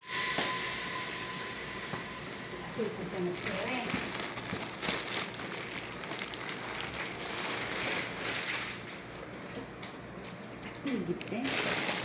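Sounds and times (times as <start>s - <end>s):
plastic packaging crinkling: 3.2s - 9.4s, 10.8s - 12.0s.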